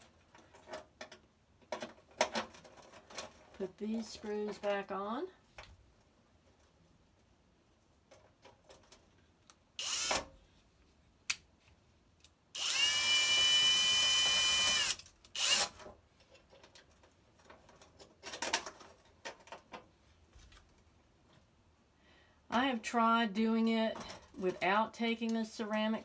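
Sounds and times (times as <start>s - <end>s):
power drill whine: 9.8s - 10.2s, 12.6s - 15.8s.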